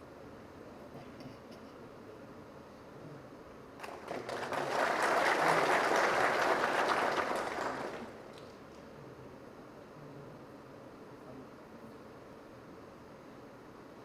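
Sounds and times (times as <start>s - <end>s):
audience applauding: 3.8s - 8.5s.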